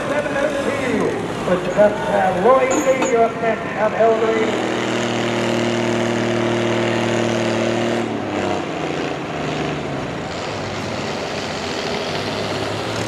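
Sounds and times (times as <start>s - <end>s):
tractor engine running: 0.0s - 5.4s.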